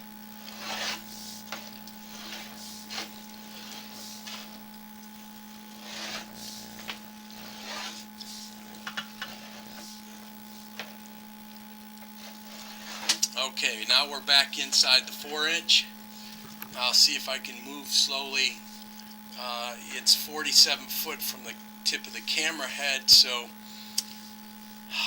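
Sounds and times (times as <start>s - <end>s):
electrical hum: 0.0s - 25.0s
rod rubbing and scraping: 0.4s - 11.1s, 12.1s - 15.8s.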